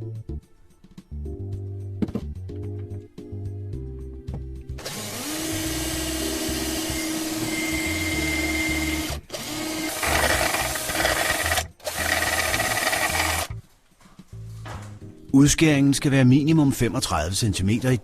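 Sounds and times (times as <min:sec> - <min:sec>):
background music: 0:00.0 - 0:18.0
electric drill boring: 0:04.8 - 0:13.5.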